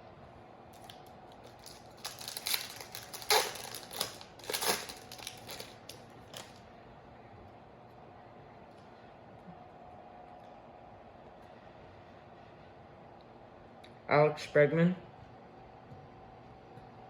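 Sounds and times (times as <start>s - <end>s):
foil wrapper crinkling: 0.8s - 6.6s.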